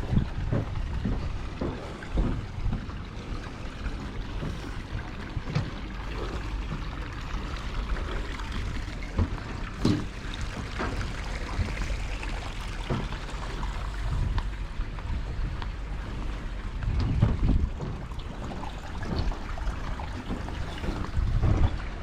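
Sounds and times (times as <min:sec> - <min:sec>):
steady low rumble: 0:00.0 - 0:22.0
trickling water: 0:00.0 - 0:22.0
soft knocks: 0:09.1 - 0:11.0.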